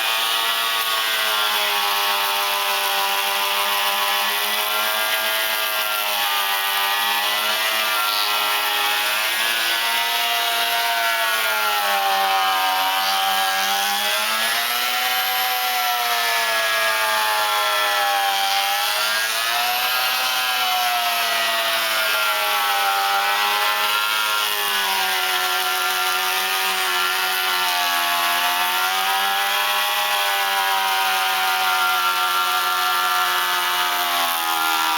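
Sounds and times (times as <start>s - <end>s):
beam planer cutting timber: 0.0s - 34.9s
hiss of wood shaving: 0.0s - 34.9s.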